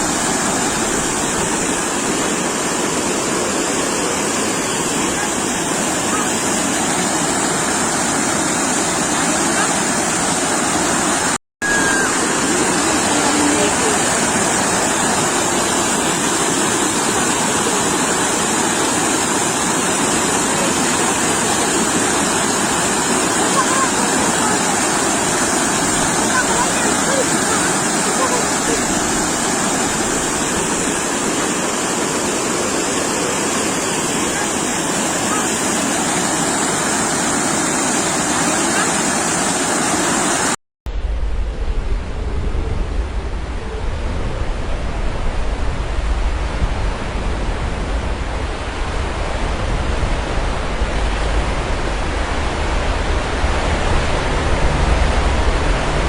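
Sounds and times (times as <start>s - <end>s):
sea waves washing ashore: 0.0s - 56.0s
deep low rumble: 40.9s - 56.0s.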